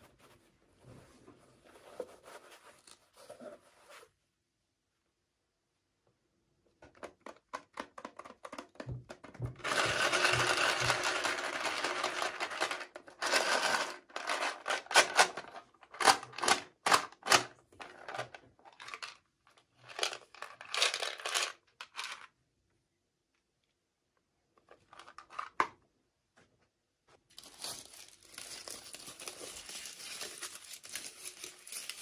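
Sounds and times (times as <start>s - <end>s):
packaging crinkling: 27.3s - 32.0s.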